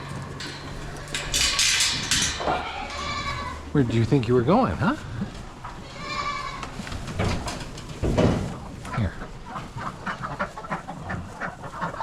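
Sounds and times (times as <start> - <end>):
goats bleating: 2.4 - 3.8, 5.6 - 6.8.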